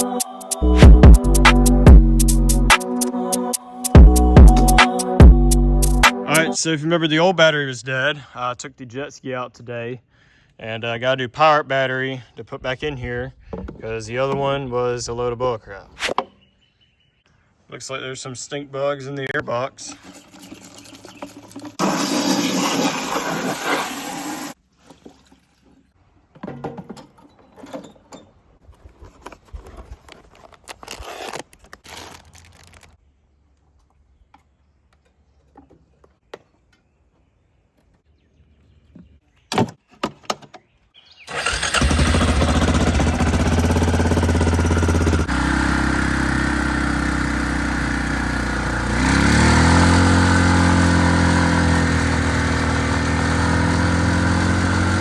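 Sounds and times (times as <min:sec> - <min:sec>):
atv engine running: 0:41.3 - 0:55.0.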